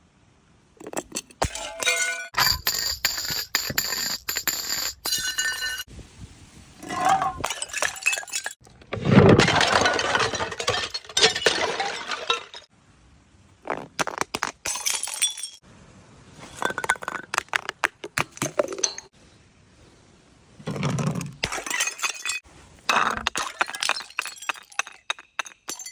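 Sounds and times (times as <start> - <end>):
glass bottles shattering: 0.8 - 5.9, 6.8 - 8.6, 9.2 - 12.7, 14.6 - 15.6, 16.5 - 17.7, 18.4 - 19.1, 21.4 - 25.9.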